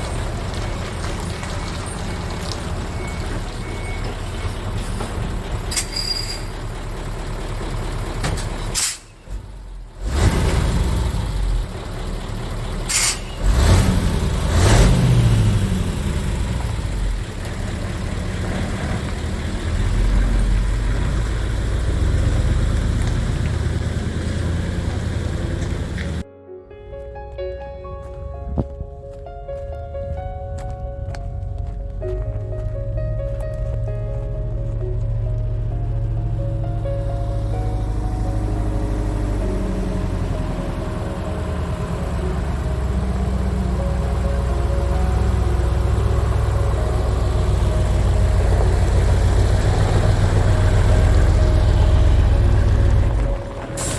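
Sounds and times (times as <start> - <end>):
diesel engine running: 0.0 - 26.3, 27.5 - 53.9
air brake hiss: 8.7 - 9.2, 12.9 - 13.4.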